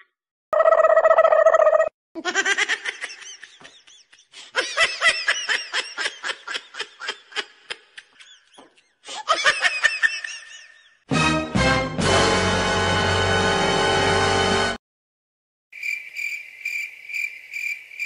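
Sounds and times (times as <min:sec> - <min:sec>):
high-pitched laughter: 0:01.8 - 0:11.0.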